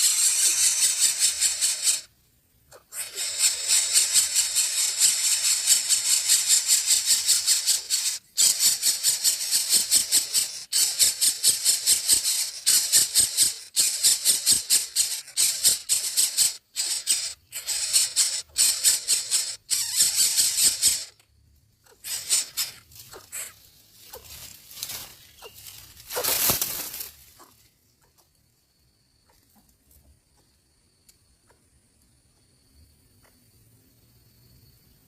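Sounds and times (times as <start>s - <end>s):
nestling birds begging calls: 0.0s - 2.1s, 2.7s - 21.2s, 21.8s - 27.6s.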